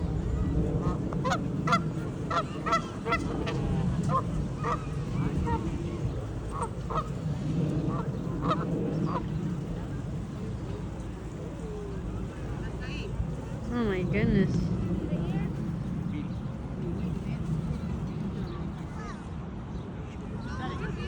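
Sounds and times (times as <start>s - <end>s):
low background rumble: 0.0s - 19.9s
geese honking: 0.8s - 5.6s, 6.5s - 9.3s.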